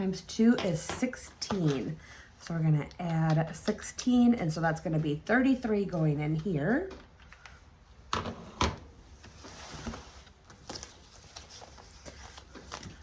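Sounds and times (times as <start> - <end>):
paper rustling: 9.4 - 13.0.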